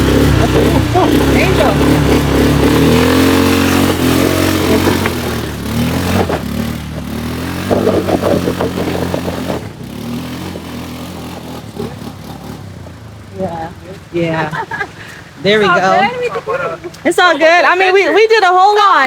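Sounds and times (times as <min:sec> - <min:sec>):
rattling: 0:00.0 - 0:14.1
quad engine revving: 0:00.0 - 0:17.0.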